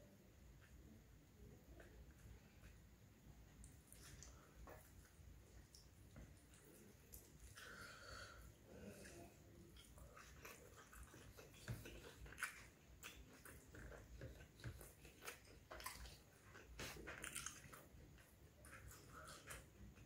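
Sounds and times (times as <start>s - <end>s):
person chewing food: 1.7s - 20.0s.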